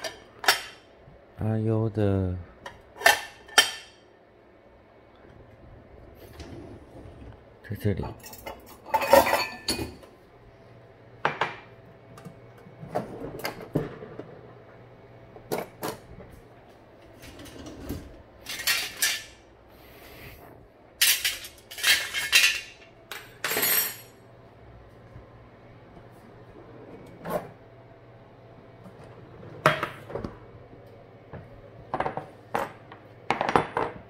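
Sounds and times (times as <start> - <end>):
dishes and cutlery clinking: 8.1 - 10.0, 18.4 - 19.4, 21.0 - 24.2.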